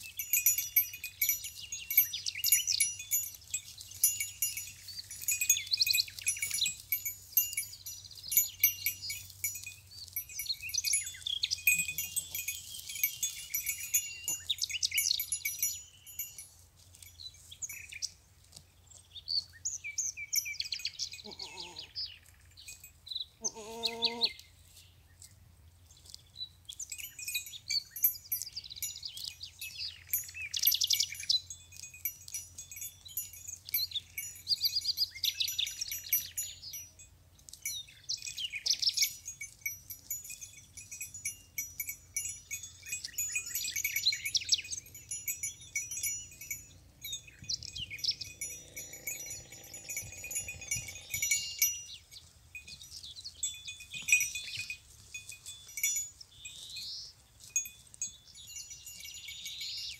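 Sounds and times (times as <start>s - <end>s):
goat bells clanking and jingling: 0.0s - 59.9s
goat bleat: 21.2s - 22.0s, 23.4s - 24.4s.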